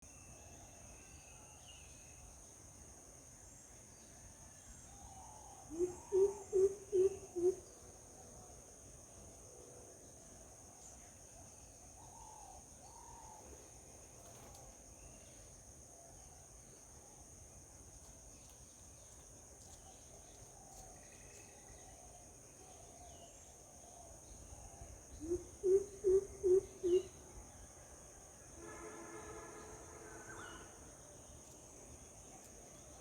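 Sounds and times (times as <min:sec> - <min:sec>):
faint bird chirps: 0:03.6 - 0:08.0, 0:18.4 - 0:27.9
low repeated calls: 0:05.5 - 0:07.7, 0:25.1 - 0:27.2.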